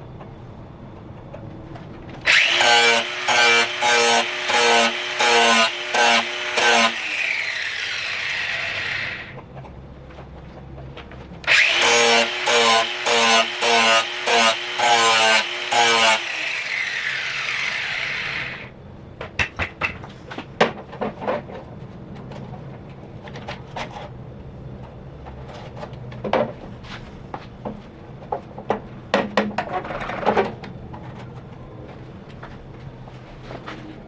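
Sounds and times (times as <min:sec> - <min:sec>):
angle grinder grinding steel: 0:02.3 - 0:09.3, 0:11.5 - 0:18.7
grinder winding down whine: 0:02.3 - 0:09.4, 0:11.5 - 0:18.7.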